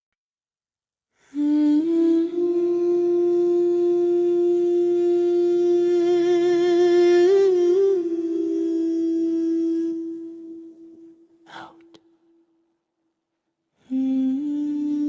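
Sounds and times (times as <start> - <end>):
person humming a long note: 1.3 - 12.0, 13.9 - 15.0.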